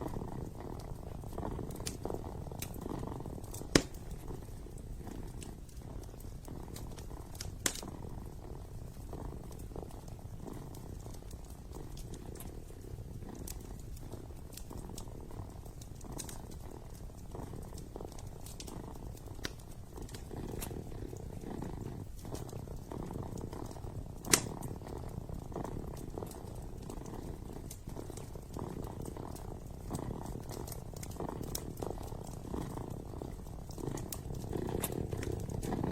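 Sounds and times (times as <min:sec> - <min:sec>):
kitten purring: 0:00.0 - 0:35.9
wood fire crackling: 0:00.0 - 0:35.9.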